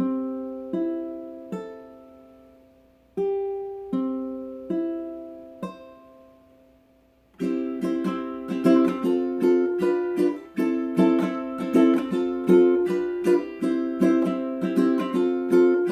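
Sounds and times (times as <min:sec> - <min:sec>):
chords strummed on small stringed instrument: 0:07.4 - 0:15.9.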